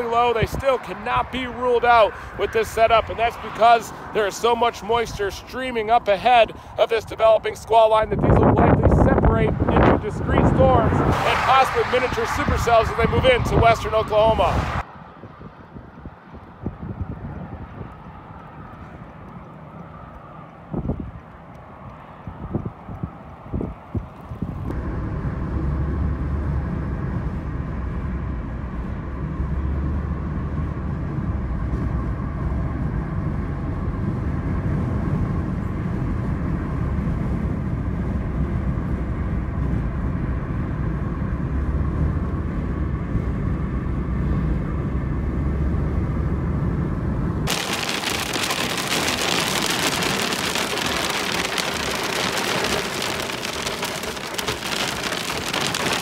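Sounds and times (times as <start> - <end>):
vehicle driving rumble: 0.0 - 56.0
rain and hail pelting: 47.5 - 56.0.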